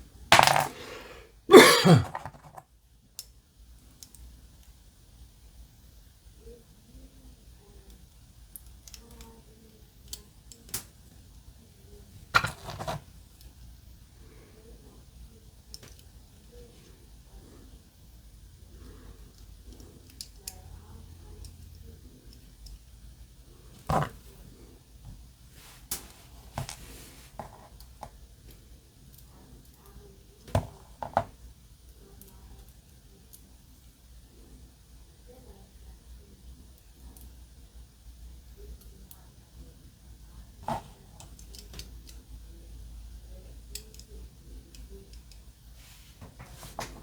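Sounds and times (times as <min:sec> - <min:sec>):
sharp knocks of parts: 0:00.3 - 0:00.9, 0:01.5 - 0:02.6, 0:12.4 - 0:13.0
small plastic parts clicking: 0:07.9 - 0:09.4, 0:10.0 - 0:11.0, 0:19.3 - 0:20.6, 0:40.6 - 0:42.2.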